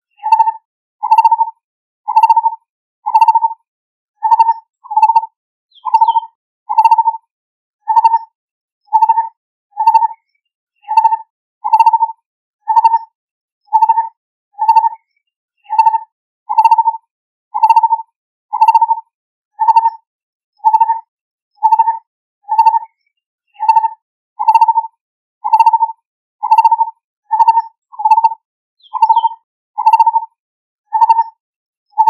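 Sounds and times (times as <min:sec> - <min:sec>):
barbet calling: 0:05.8 - 0:07.1, 0:21.6 - 0:21.9, 0:26.4 - 0:30.2.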